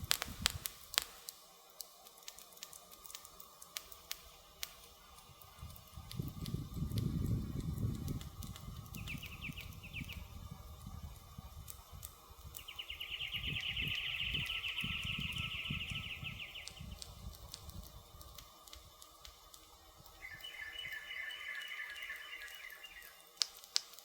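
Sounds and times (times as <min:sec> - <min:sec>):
wood fire crackling and popping: 0:00.0 - 0:24.0
songbird trilling: 0:08.9 - 0:10.3, 0:12.6 - 0:17.0, 0:20.2 - 0:23.3.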